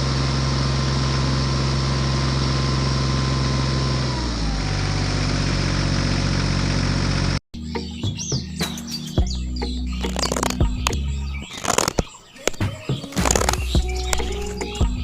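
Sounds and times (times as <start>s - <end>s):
motor humming: 10.0s - 15.0s.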